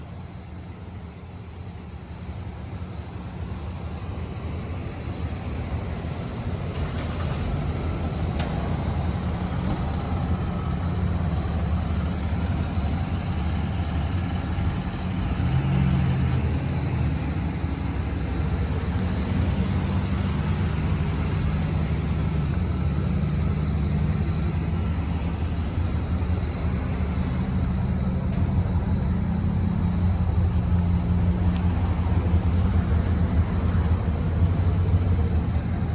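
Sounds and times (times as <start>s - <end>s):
car engine droning: 0.0s - 35.9s.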